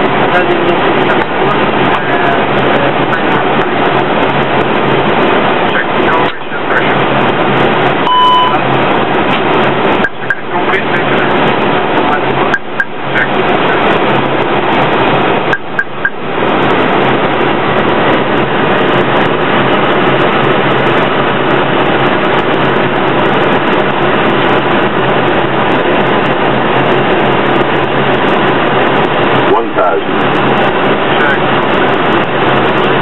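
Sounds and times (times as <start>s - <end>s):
cockpit airflow and engine noise: 0.0s - 33.0s
constant low hum: 0.0s - 33.0s
short high beeps: 8.0s - 8.6s.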